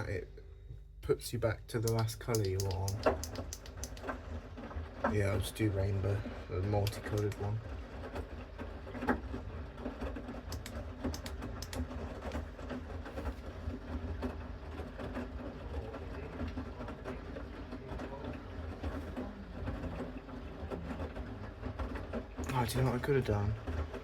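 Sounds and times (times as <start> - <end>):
washing machine drum rumbling: 1.2 - 24.0
light clicks: 1.8 - 4.1, 6.8 - 7.5, 10.5 - 12.4.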